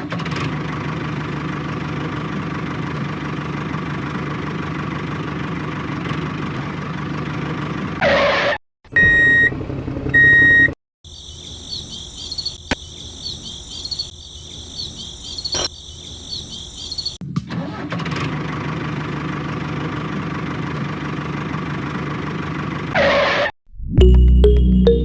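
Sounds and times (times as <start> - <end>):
engine running: 0.0 - 8.0, 18.1 - 23.0
short beeps: 9.0 - 9.5, 10.2 - 10.8
high chirping: 11.1 - 17.2.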